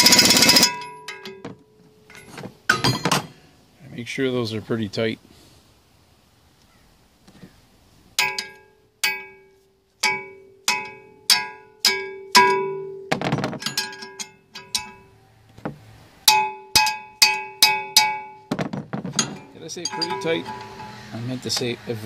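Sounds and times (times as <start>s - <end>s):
metal tool clinking on steel: 0.1s - 3.3s, 8.2s - 13.0s, 13.6s - 15.1s, 16.3s - 18.5s, 19.1s - 21.7s
short rattle: 18.7s - 21.7s.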